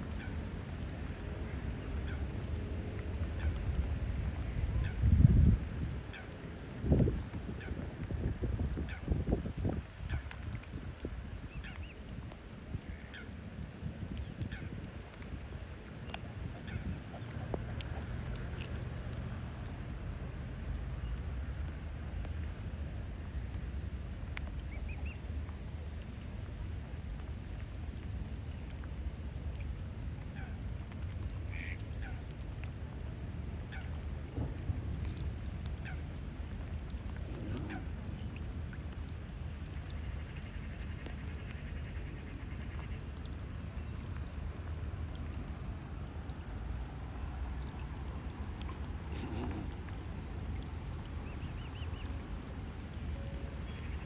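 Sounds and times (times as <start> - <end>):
rain pattering on water: 0.0 - 54.0
waterbird calls: 1.2 - 13.5, 14.2 - 20.0, 31.4 - 32.6, 33.5 - 44.4, 47.0 - 54.0.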